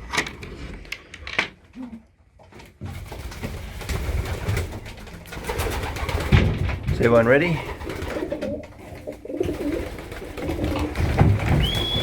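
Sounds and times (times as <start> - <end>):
pigeons cooing: 7.6 - 12.0.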